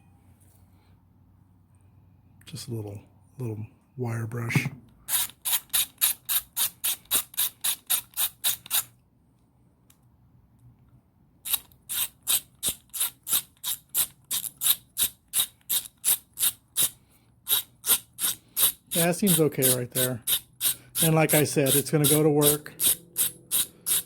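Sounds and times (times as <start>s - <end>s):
ratchet clicking: 5.1s - 8.9s, 11.4s - 24.0s.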